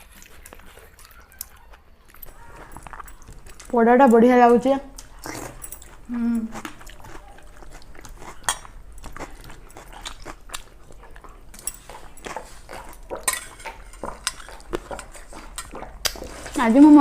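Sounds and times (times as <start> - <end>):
chewing and mouth sounds: 0.0 - 17.0
dishes clattering: 11.6 - 15.8.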